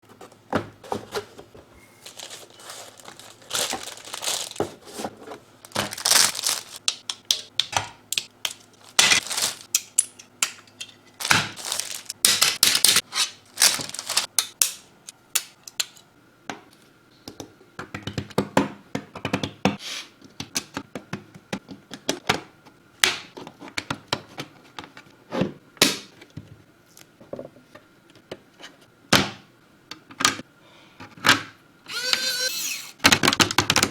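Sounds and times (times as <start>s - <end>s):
plastic packaging crinkling and tearing: 1.9s - 7.0s, 8.5s - 9.8s, 11.2s - 14.3s
small hard parts clicking and knocking: 5.7s - 13.0s.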